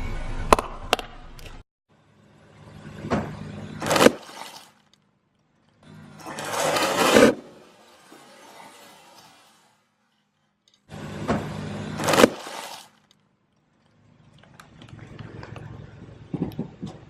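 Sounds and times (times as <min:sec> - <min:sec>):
tyre crunching over objects: 0:03.8 - 0:04.8, 0:12.0 - 0:13.0.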